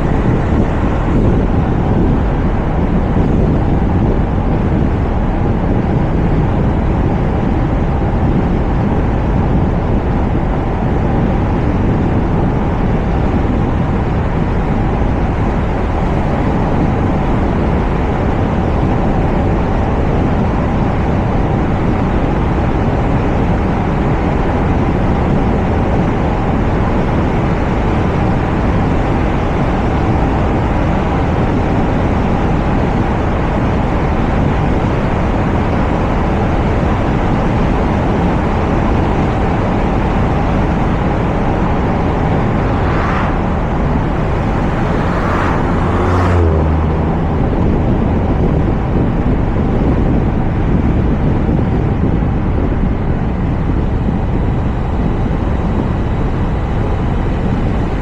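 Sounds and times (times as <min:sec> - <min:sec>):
wind and road noise: 0:00.0 - 0:58.0
short swooshes: 0:41.4 - 0:47.2.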